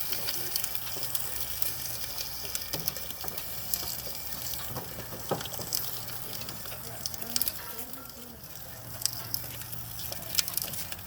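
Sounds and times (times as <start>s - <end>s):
cane stalks crackling in rollers: 0.0s - 11.0s
juice running hiss: 0.0s - 11.0s.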